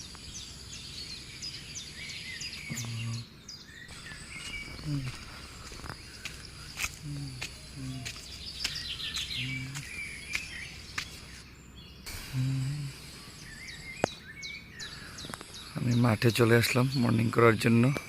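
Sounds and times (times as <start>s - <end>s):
small birds chirping: 0.0s - 18.0s
short low-pitched calls: 3.9s - 5.8s, 6.8s - 10.2s, 12.1s - 14.1s.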